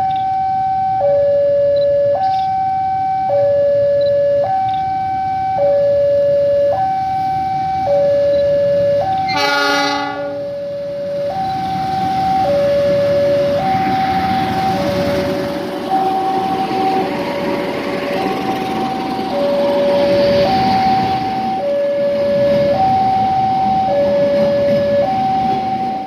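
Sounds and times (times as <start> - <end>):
level crossing alarm two-tone wail: 0.0 - 15.2, 15.9 - 17.5, 18.1 - 26.0
train horn blast: 9.2 - 10.5.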